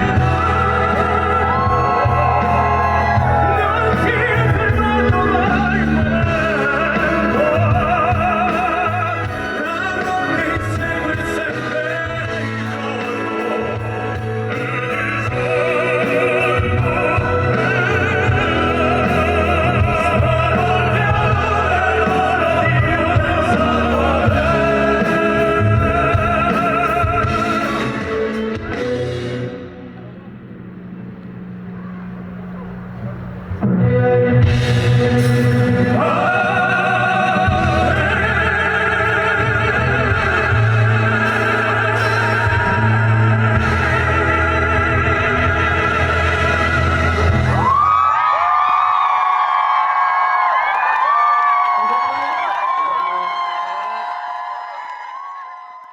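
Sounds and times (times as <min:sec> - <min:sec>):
male vocal quartet singing operatically: 0:00.0 - 0:28.4, 0:35.0 - 0:47.6
musical accompaniment: 0:00.0 - 0:54.3.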